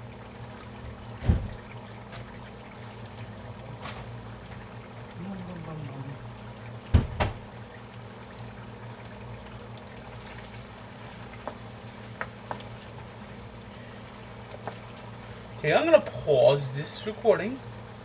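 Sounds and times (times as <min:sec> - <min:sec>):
potato wedges frying in oil: 0:00.0 - 0:18.0
loud knocks: 0:06.9 - 0:07.4.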